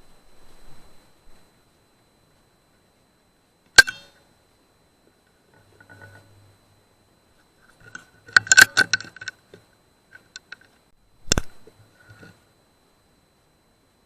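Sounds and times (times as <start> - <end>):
metallic clicks and rattles: 7.8 - 9.4.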